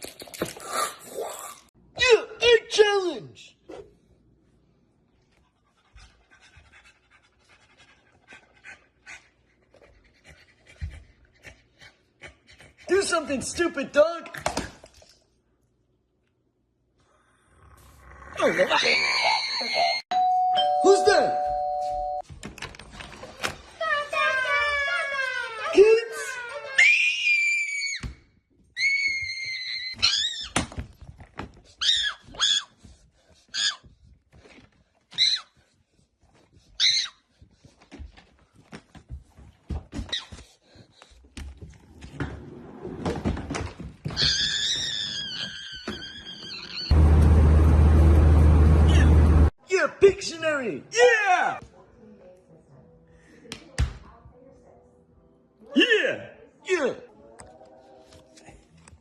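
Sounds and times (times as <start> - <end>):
dog panting: 5.4 - 13.0
high-pitched squealing cries: 18.7 - 20.0, 28.8 - 30.6, 31.8 - 32.7, 44.2 - 47.0.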